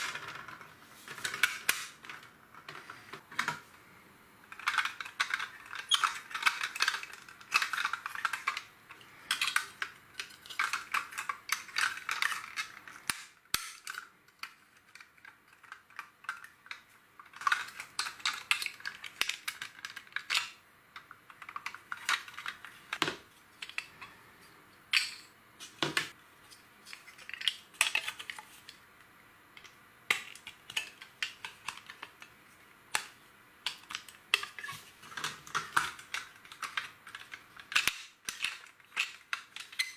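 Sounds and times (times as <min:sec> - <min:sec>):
plastic bricks clicking: 0:04.5 - 0:24.1, 0:29.6 - 0:39.9.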